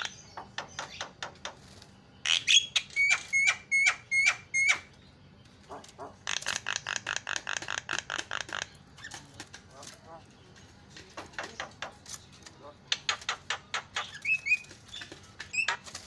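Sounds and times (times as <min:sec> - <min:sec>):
myna calling: 0:05.6 - 0:10.4.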